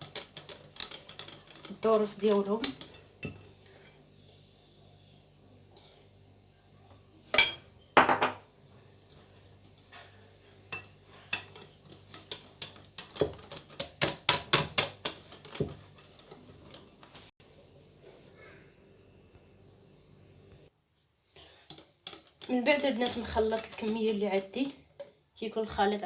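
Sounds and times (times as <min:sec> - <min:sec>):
utensil scraping mixing bowl: 0:00.0 - 0:06.0, 0:09.1 - 0:17.3, 0:21.4 - 0:26.0.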